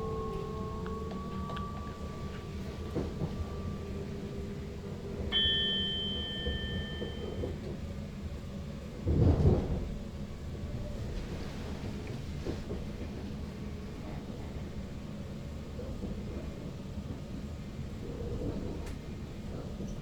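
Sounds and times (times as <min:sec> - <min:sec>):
bell-like ding: 0:00.0 - 0:04.3, 0:05.3 - 0:07.5
train running rumble: 0:00.0 - 0:20.0.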